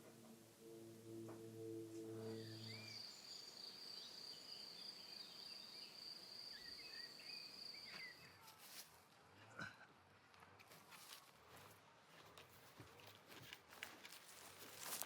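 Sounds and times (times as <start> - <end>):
faint bird chirps: 2.0 - 8.6.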